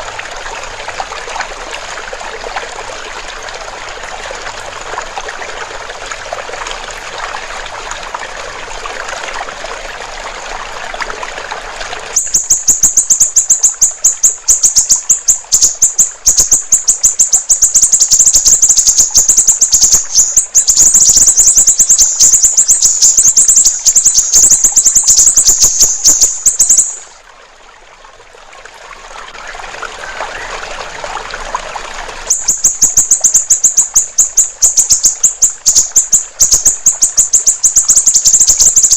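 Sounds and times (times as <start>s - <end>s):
trickling water: 0.0s - 38.9s
bird singing fast high notes: 12.2s - 27.2s, 32.3s - 38.9s.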